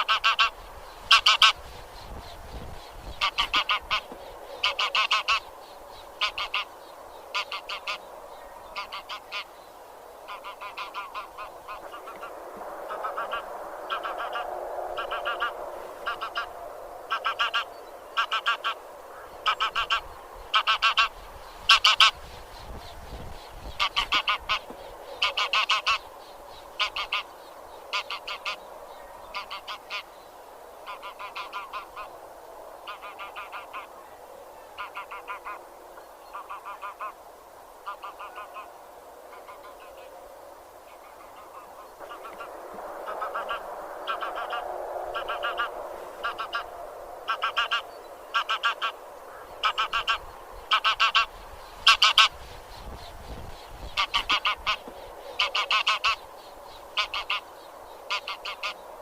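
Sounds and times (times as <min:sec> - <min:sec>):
geese honking: 0:00.0 - 0:01.6, 0:03.2 - 0:05.5, 0:06.2 - 0:06.7, 0:07.3 - 0:08.1, 0:08.7 - 0:09.5, 0:10.3 - 0:22.2, 0:23.8 - 0:26.1, 0:26.8 - 0:27.3, 0:27.9 - 0:28.6, 0:29.3 - 0:30.1, 0:30.8 - 0:32.1, 0:32.8 - 0:33.9, 0:34.8 - 0:35.6, 0:36.3 - 0:37.2, 0:41.0 - 0:52.4, 0:53.9 - 0:56.3, 0:56.9 - 0:57.5, 0:58.1 - 0:58.8
murmur of distant birds: 0:00.0 - 0:59.0.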